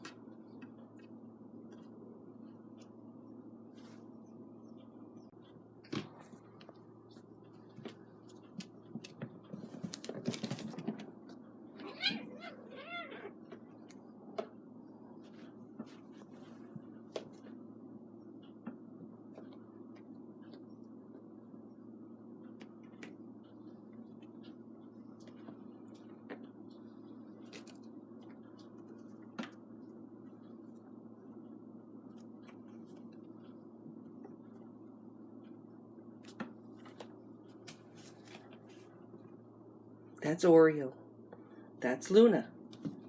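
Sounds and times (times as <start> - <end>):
steady low hum: 0.0 - 43.0
kitten meowing: 11.8 - 13.3.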